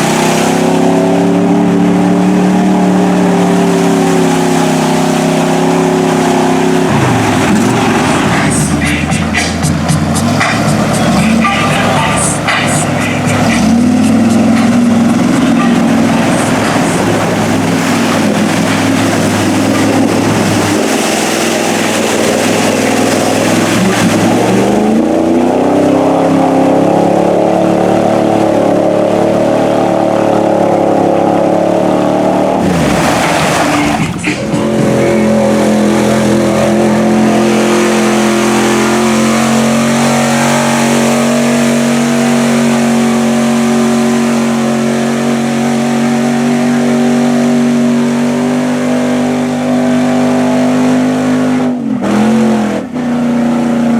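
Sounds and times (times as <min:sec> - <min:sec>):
truck engine revving high: 0:00.0 - 0:53.9.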